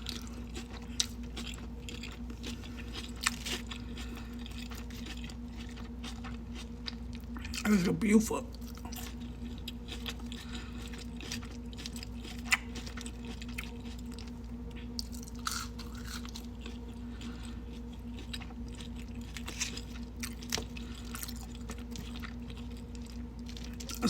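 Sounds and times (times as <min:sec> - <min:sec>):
chewing a burger: 0:00.0 - 0:07.8, 0:08.5 - 0:24.0.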